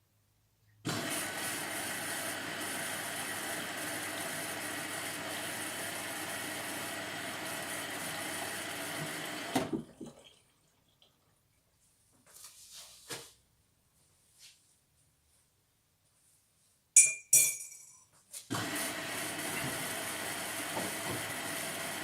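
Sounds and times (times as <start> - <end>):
washing machine filling with water: 0.9 - 11.0, 18.5 - 22.0.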